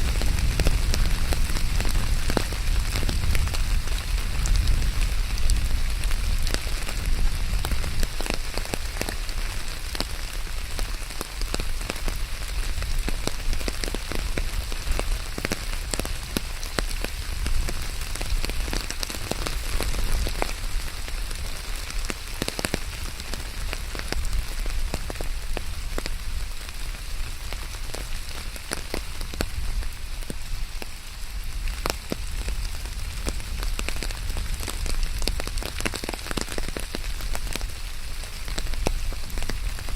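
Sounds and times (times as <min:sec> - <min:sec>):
rain on hard surfaces: 0:00.0 - 0:39.9.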